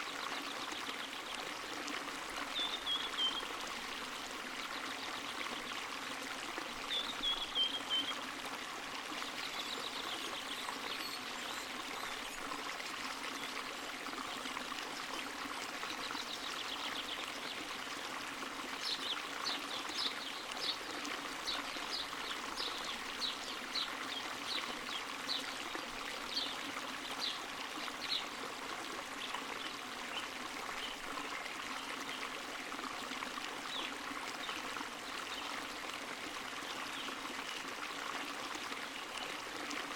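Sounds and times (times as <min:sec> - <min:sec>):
spring water trickling: 0:00.0 - 0:39.9.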